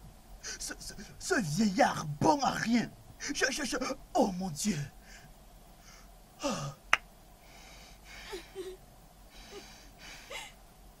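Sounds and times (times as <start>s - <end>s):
person gasping breaths: 5.0s - 6.8s, 7.4s - 10.6s
person crying out: 10.3s - 10.5s.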